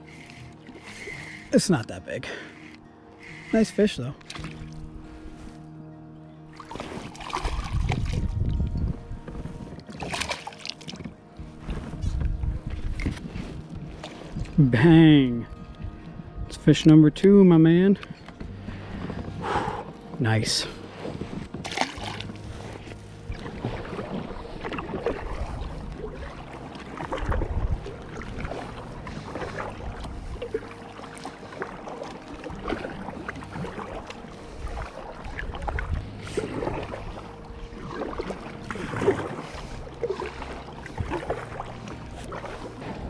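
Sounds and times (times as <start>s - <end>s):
low rumble: 7.1s - 10.3s, 11.1s - 16.7s.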